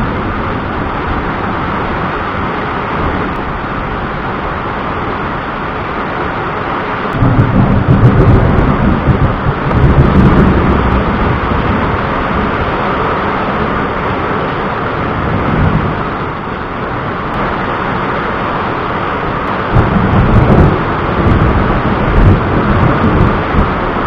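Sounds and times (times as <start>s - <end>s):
rain hissing: 0.0s - 24.0s
rolling thunder: 7.1s - 18.0s, 19.4s - 24.0s.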